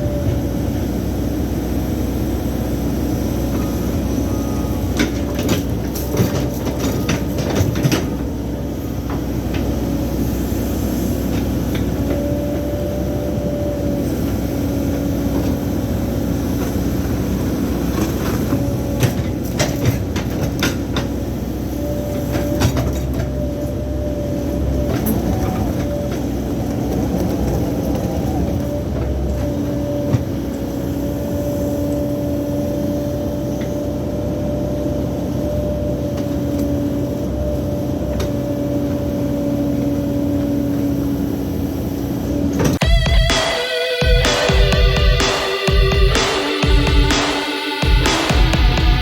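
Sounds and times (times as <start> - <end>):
diesel engine running: 0.0 - 49.0
hydraulic whine: 0.0 - 49.0.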